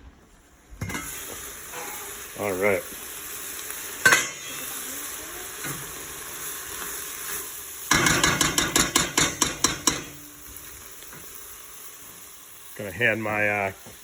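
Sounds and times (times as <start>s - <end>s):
vegetables sizzling in a pot: 0.2s - 14.0s
utensil scraping and knocking pot: 7.2s - 11.4s.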